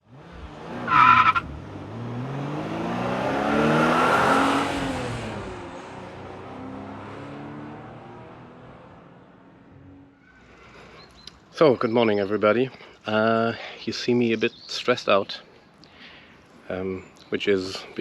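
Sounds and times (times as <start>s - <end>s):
car driving past: 0.1s - 10.2s.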